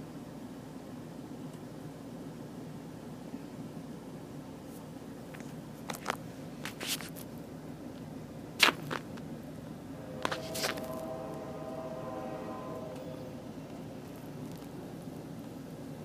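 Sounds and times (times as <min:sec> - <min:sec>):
train rumbling from inside: 0:09.1 - 0:16.0
faint steady tone: 0:09.6 - 0:16.0.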